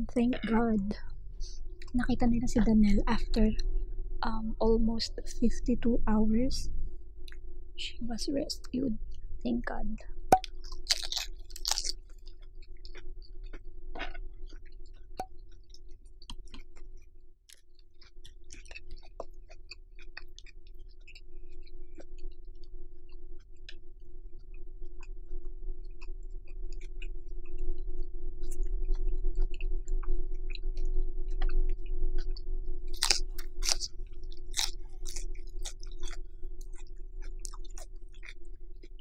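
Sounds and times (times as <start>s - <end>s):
steady hum: 0.0s - 16.9s, 18.1s - 39.0s
chewing mouth clicks and smacks: 10.4s - 39.0s.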